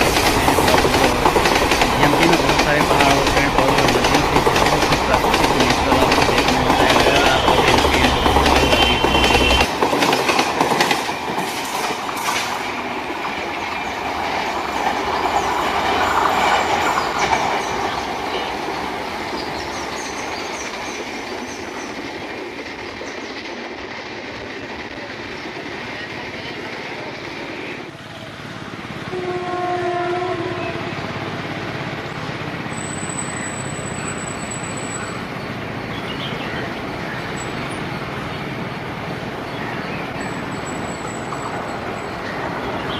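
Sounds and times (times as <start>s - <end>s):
train wheels clattering: 0.0s - 25.0s
short horn-like tone: 7.4s - 9.7s.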